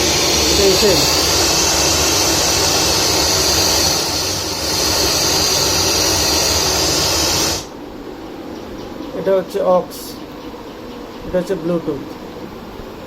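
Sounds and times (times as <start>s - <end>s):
radio static hissing: 0.0s - 7.7s.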